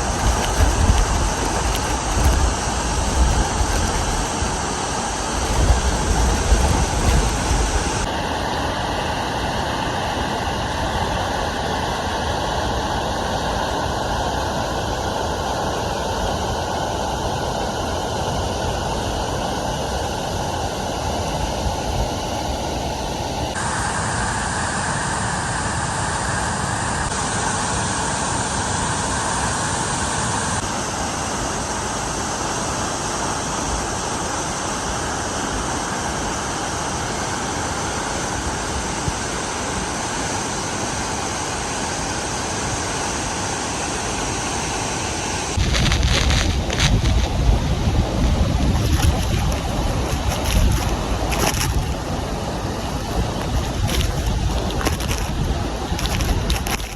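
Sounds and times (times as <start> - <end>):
low bumps: 0.0 - 8.1, 45.6 - 56.9.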